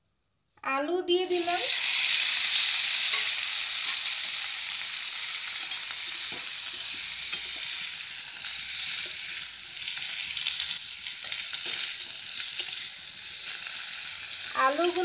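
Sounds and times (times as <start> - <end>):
potatoes sizzling in oil: 0.8 - 15.0
spatula scraping a pan: 5.6 - 7.8, 8.4 - 13.8.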